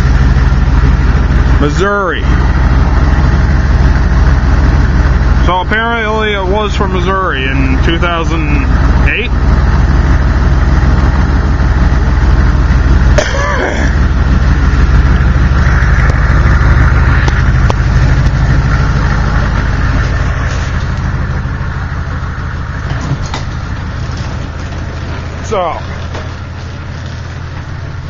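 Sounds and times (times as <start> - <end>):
diesel truck engine idling: 0.0 - 28.0.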